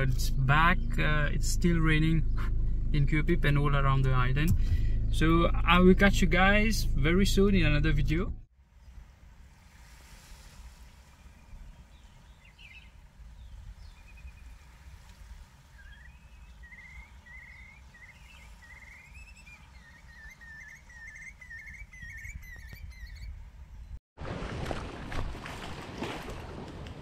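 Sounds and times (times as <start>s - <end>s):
low steady rumble: 0.0s - 10.8s
bird singing short repeated notes: 15.8s - 24.0s.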